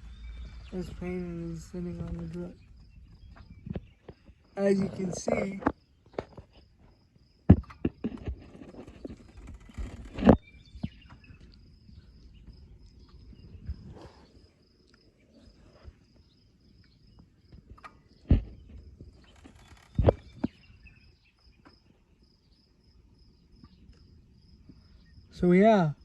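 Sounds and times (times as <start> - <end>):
cricket chirping: 0.0 - 26.0.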